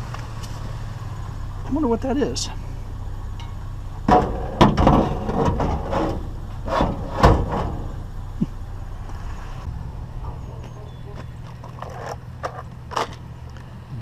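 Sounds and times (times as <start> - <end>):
junk knocking and clattering: 3.4 - 8.6.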